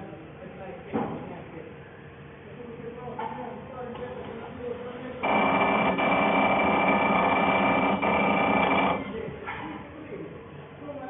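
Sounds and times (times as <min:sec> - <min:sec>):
machining noise with high whine: 0:05.2 - 0:09.3.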